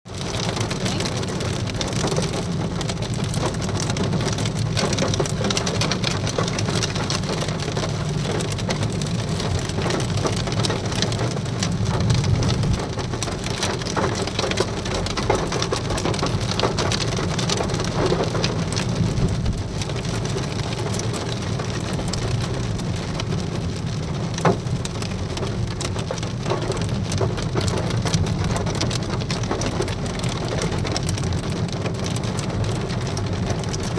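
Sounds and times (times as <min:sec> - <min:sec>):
hailstones ticking: 0:00.1 - 0:33.9
heavy rain: 0:00.1 - 0:33.9.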